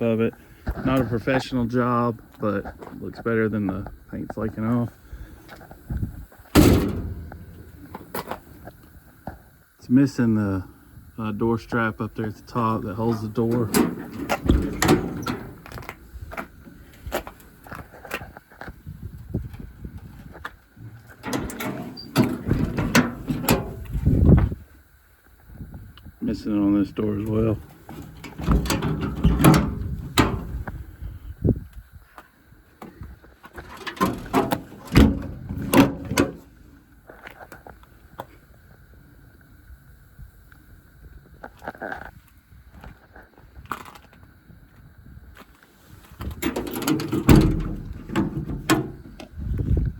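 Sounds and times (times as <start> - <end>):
truck door knocks and clicks: 6.6 - 8.4, 13.4 - 17.4, 20.8 - 24.5, 27.9 - 30.8, 33.6 - 36.4, 46.3 - 49.3.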